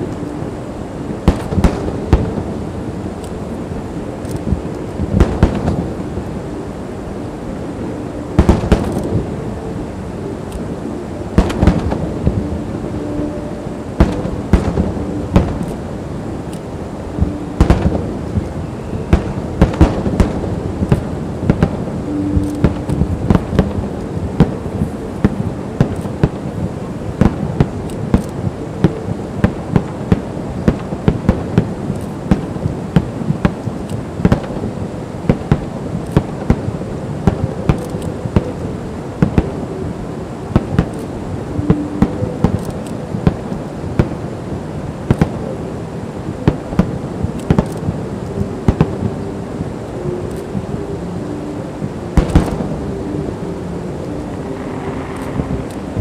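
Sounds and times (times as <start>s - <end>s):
fireworks bangs and crackles: 1.2s - 3.6s, 4.2s - 6.3s, 8.4s - 9.3s, 11.3s - 12.6s, 13.9s - 45.6s, 46.3s - 50.7s, 51.8s - 52.9s, 54.3s - 56.0s
low rumble of booms: 14.0s - 16.5s, 17.2s - 41.0s.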